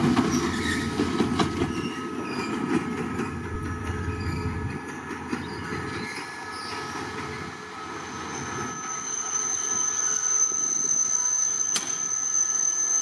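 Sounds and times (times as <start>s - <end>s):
train wheels rumbling: 0.0s - 9.8s
train wheels squealing: 0.0s - 13.0s.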